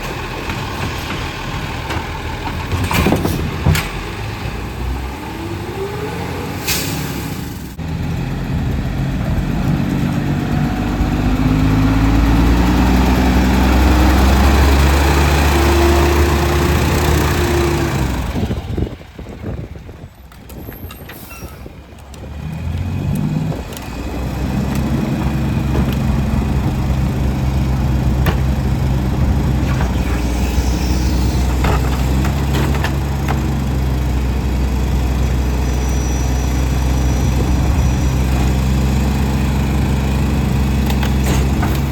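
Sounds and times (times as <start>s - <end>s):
knocks and clanks: 0.0s - 4.1s, 24.5s - 30.5s, 31.3s - 33.7s, 40.8s - 41.9s
garbage truck diesel engine revving: 0.0s - 20.1s, 21.8s - 41.9s.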